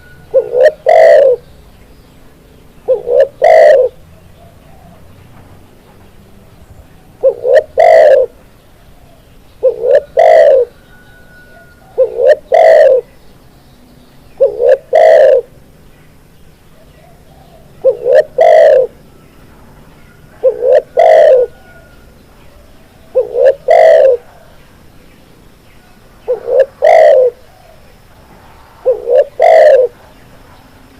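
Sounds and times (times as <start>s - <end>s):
dove cooing: 0.0s - 1.4s, 2.8s - 5.1s, 7.2s - 8.4s, 9.0s - 13.1s, 14.4s - 15.6s, 16.8s - 19.0s, 20.1s - 24.6s, 26.2s - 27.9s, 28.8s - 30.2s.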